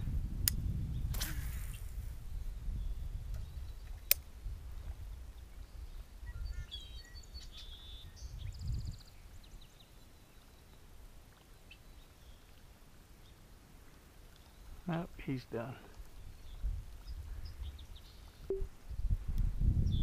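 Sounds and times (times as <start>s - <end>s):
small bird chirping: 5.6s - 10.8s.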